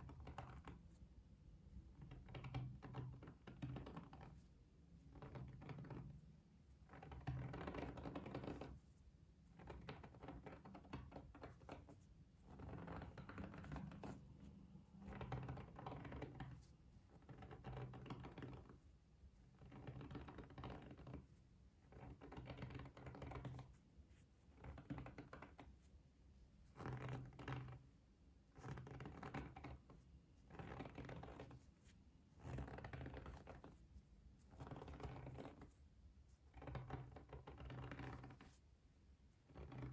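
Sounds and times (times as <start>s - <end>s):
soft crackly scratching: 9.6s - 27.9s, 28.6s - 38.8s.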